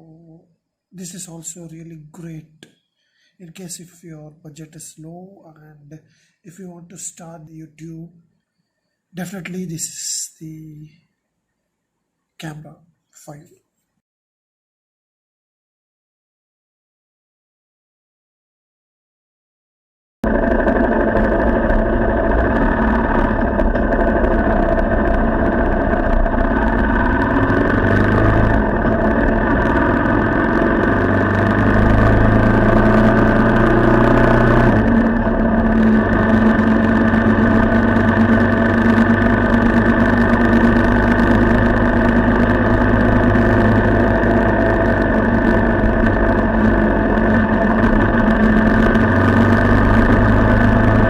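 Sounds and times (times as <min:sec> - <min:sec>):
motorcycle engine running: 0:20.2 - 0:51.0.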